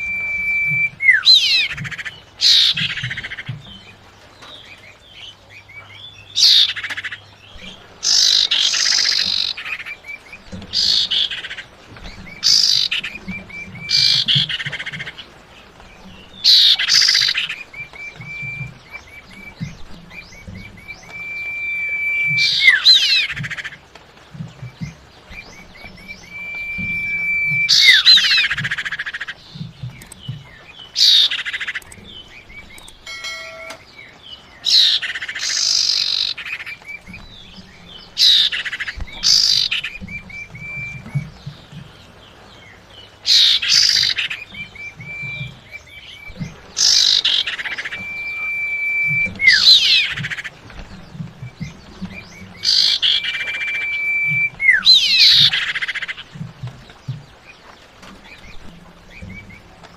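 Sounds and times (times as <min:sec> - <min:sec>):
bird whistling and harsh calls: 0:00.0 - 0:03.6, 0:05.6 - 0:15.3, 0:15.9 - 0:23.8, 0:24.5 - 0:42.1, 0:42.7 - 0:56.8.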